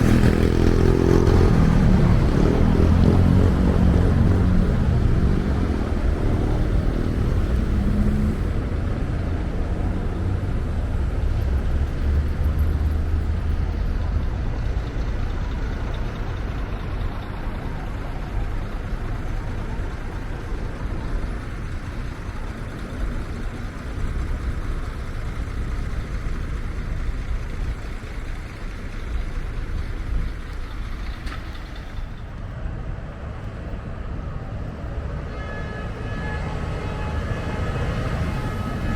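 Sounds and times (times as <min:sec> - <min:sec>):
road traffic rumble: 0:00.0 - 0:38.9.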